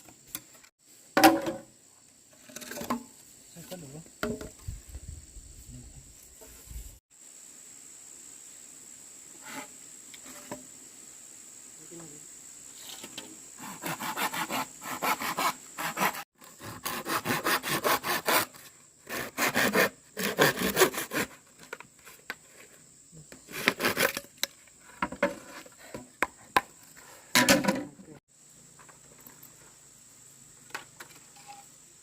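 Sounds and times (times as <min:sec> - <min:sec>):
hand saw cutting wood: 0:13.6 - 0:21.8, 0:23.5 - 0:24.3.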